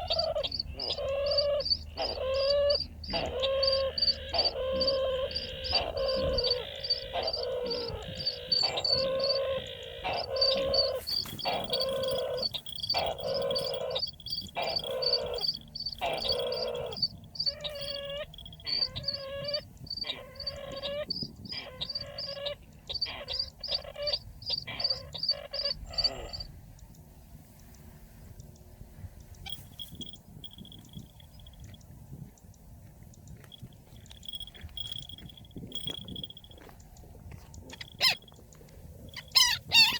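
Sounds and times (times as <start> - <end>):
fast high chirps: 0.0 - 26.5, 39.1 - 39.9
bird calls with low note: 0.0 - 26.9, 33.5 - 39.9.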